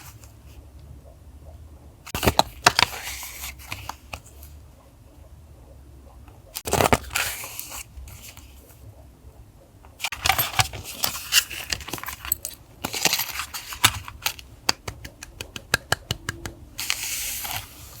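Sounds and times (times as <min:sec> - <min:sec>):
paper rustling: 0:10.0 - 0:14.5, 0:16.8 - 0:18.0.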